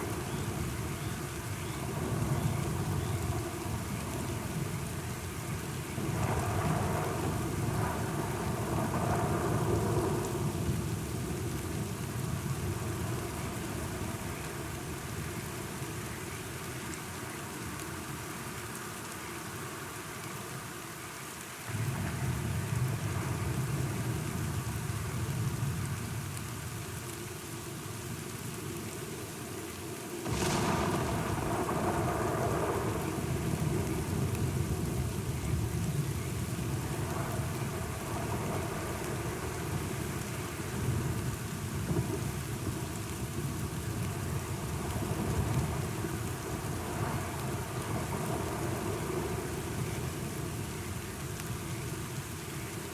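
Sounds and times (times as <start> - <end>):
thunder rumbling: 0.0 - 15.2, 30.2 - 52.8
steady rain: 0.0 - 52.9.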